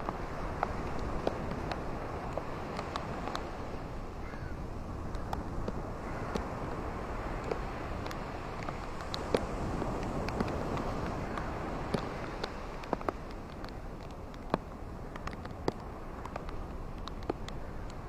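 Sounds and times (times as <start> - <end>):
rain and wind rushing: 0.0 - 18.0
raindrop taps: 7.4 - 18.0.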